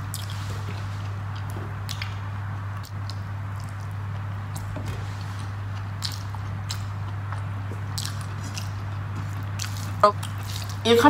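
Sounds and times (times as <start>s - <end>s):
steady low hum: 0.0s - 11.0s
person chewing: 2.8s - 4.7s, 5.4s - 10.8s.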